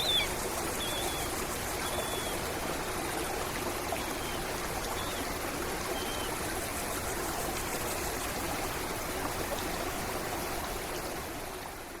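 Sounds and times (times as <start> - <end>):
bird chirp: 0.0 - 1.2
stream water trickling: 0.0 - 12.0.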